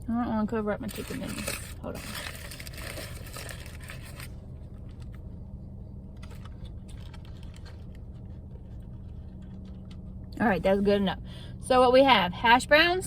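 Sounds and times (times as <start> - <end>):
low hum: 0.0 - 13.0
paper wrappers rustling: 0.9 - 5.2, 6.2 - 10.1.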